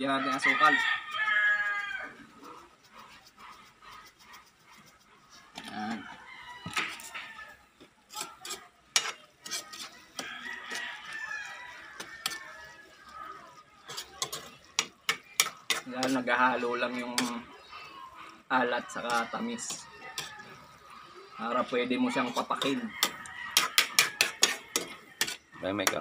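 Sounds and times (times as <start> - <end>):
rooster crowing: 0.0 - 2.4, 5.6 - 7.6, 10.2 - 13.5, 17.2 - 25.4
metal ladle scraping wok: 8.1 - 17.5, 22.2 - 26.0.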